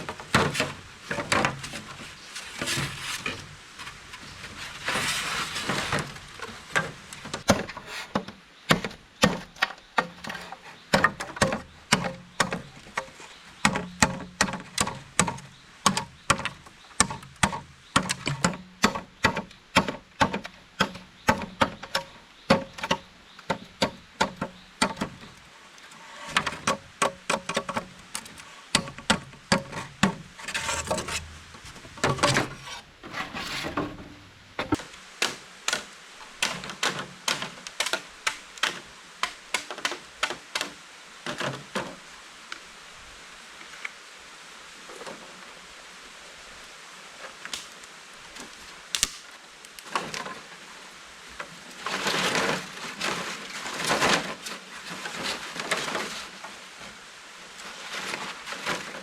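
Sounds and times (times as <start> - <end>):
rustling noise: 0.0 - 8.3, 27.5 - 35.1, 47.2 - 59.0.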